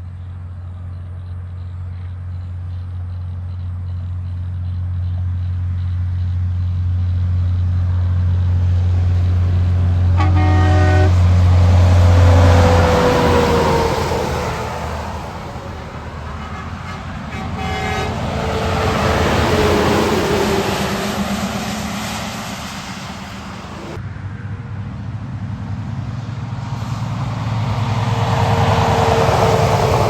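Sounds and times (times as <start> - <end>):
trucks passing on wet road: 5.2 - 24.0, 24.8 - 30.0
truck horn: 9.3 - 22.1.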